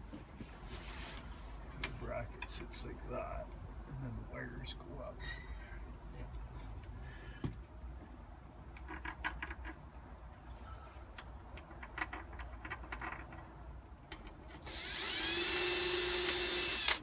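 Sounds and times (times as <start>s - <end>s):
power drill whine: 14.6s - 17.0s.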